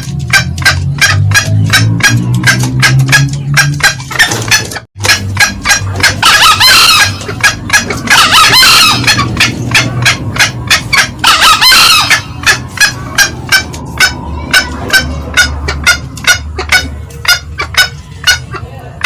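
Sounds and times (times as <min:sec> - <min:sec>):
junglefowl cackling calls: 0:00.0 - 0:19.0
rooster crowing: 0:08.1 - 0:09.3, 0:11.2 - 0:12.4.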